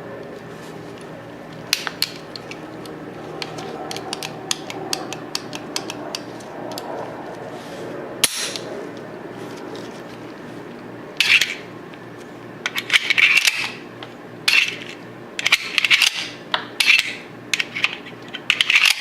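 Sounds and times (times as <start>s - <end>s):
pistol parts clicking: 1.5s - 6.9s, 14.5s - 19.0s.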